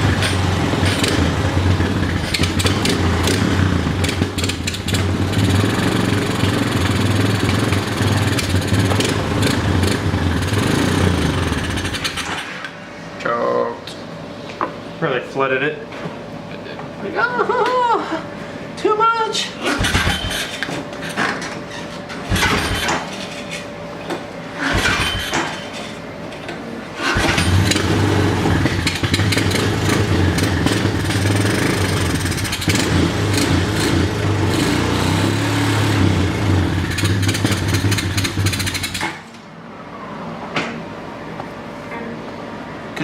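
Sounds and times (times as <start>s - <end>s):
engine cranking and running: 0.0s - 12.5s, 19.6s - 21.6s, 22.2s - 23.6s, 24.6s - 25.8s, 27.0s - 39.4s.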